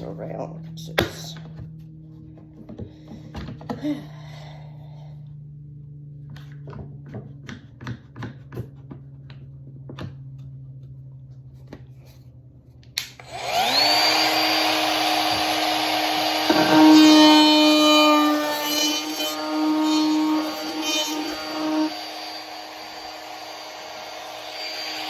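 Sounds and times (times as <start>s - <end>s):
electric power tool motor whining: 13.0s - 25.0s.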